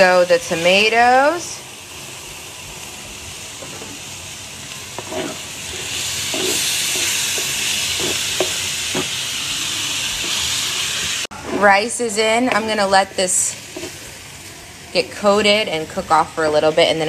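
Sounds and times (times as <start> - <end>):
tomatoes sizzling in pan: 0.0 - 17.0
utensil scraping pan: 5.0 - 9.2, 13.6 - 14.1.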